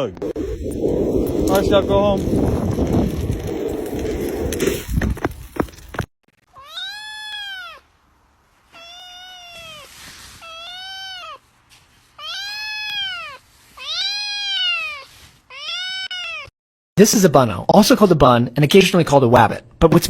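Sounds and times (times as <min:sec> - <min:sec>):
cat meowing: 0:06.5 - 0:07.8, 0:08.7 - 0:11.4, 0:12.2 - 0:16.5.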